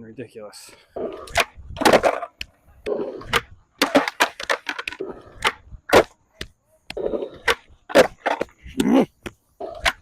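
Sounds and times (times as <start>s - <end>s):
skateboard clattering on concrete: 1.0s - 8.6s.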